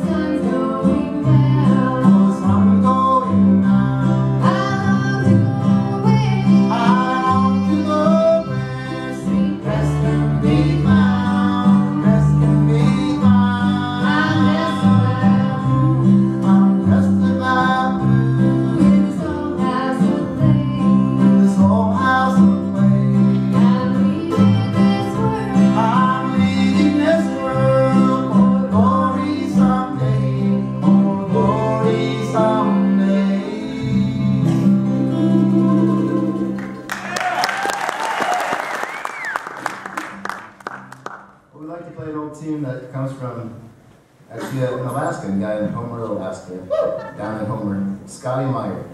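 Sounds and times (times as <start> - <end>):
mandolin: 0.0 - 37.1
upright bass: 0.0 - 37.4
guitar: 0.0 - 41.6, 43.8 - 48.9.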